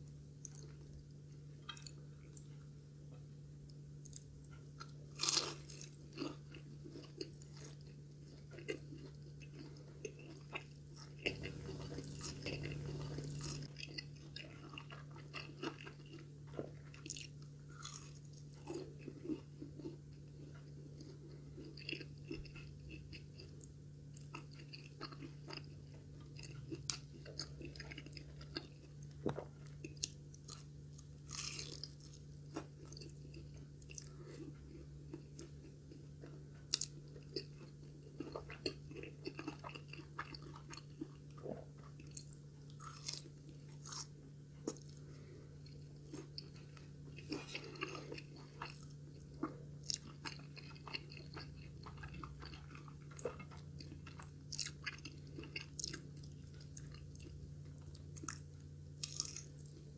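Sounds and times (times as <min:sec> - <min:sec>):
crunchy fried food chewing: 0:00.0 - 0:59.9.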